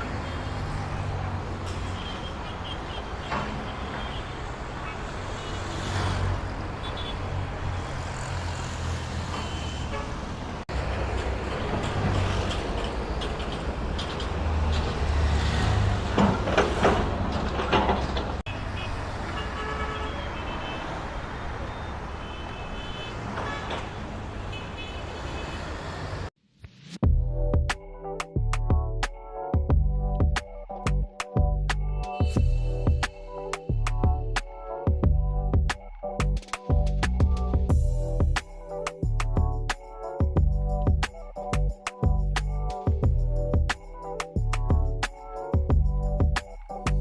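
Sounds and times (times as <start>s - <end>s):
road traffic rumble: 0.0s - 26.4s
music: 26.4s - 47.0s.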